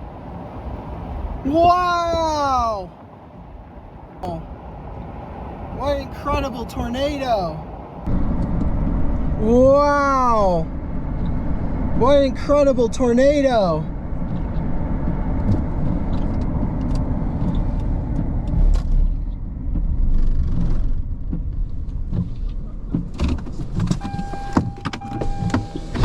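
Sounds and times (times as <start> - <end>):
low vehicle rumble: 0.0 - 26.0
knocks and clicks: 20.5 - 26.0.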